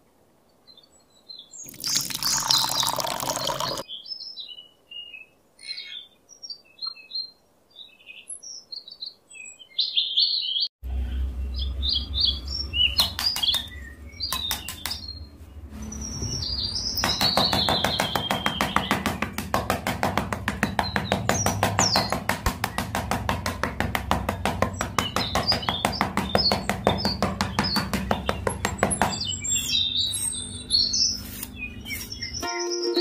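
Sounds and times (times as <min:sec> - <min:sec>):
small birds chirping: 0:00.6 - 0:33.0
water pouring: 0:01.7 - 0:03.8
low hum: 0:10.8 - 0:14.4, 0:15.0 - 0:17.2
dense rapid tapping: 0:13.0 - 0:13.7, 0:14.3 - 0:15.1, 0:17.0 - 0:29.5.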